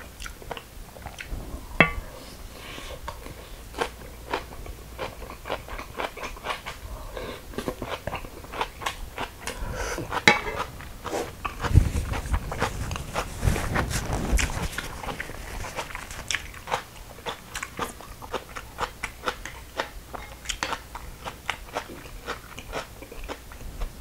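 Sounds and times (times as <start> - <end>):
chewing and crunching: 0.0 - 1.4, 3.0 - 24.0
utensil clinking steel bowl: 1.8 - 2.0, 10.2 - 10.7.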